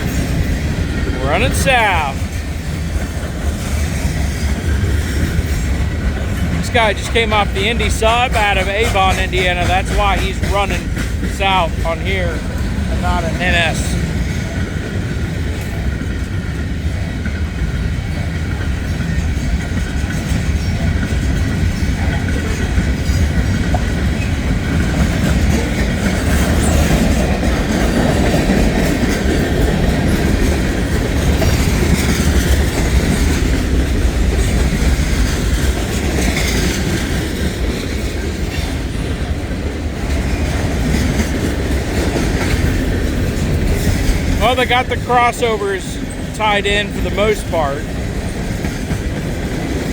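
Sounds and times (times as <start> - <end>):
freight train rumbling past: 0.0 - 49.9.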